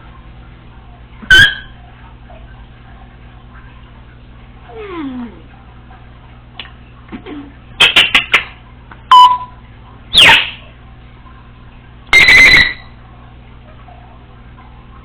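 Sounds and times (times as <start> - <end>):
parrot chirping: 1.3 - 1.7, 10.2 - 10.6, 12.2 - 12.8
parrot whistling: 1.3 - 1.7, 10.1 - 10.6, 12.2 - 12.8
parrot buzzy beep-like call: 1.3 - 1.8, 9.1 - 10.6, 12.1 - 12.9.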